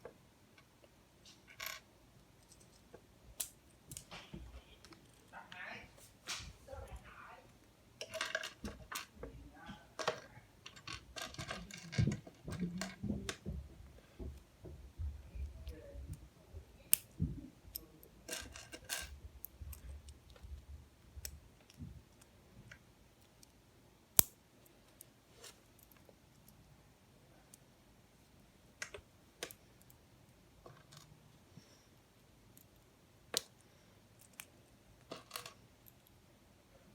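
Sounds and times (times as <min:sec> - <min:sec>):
plastic pieces clicking and rattling: 0:10.0 - 0:13.4.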